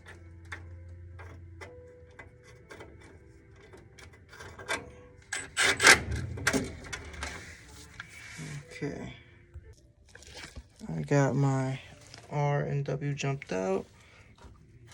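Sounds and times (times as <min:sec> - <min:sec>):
screw clicking and scraping metal: 0:00.0 - 0:08.1
metal knocks and rattles: 0:00.0 - 0:08.2.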